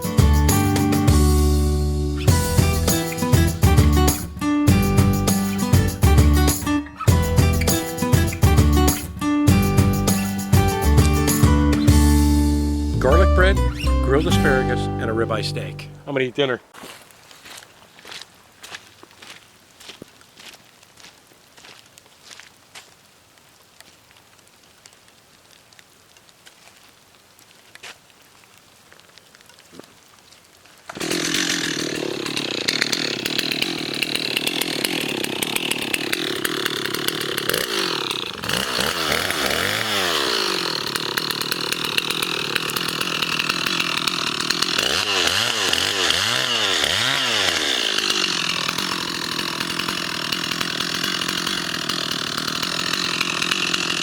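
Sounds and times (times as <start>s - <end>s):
engine-driven machine revving: 31.0s - 54.0s.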